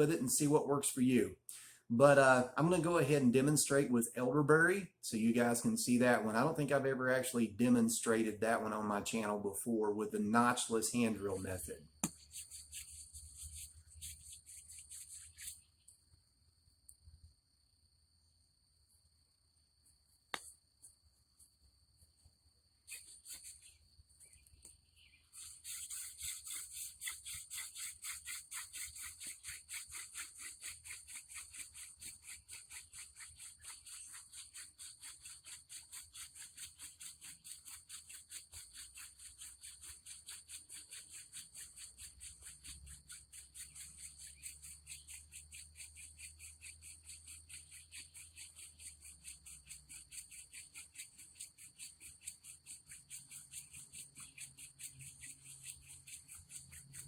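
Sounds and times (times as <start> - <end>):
insect calls: 5.2 - 57.0
wood scratching on wood: 10.1 - 16.0, 22.9 - 57.0.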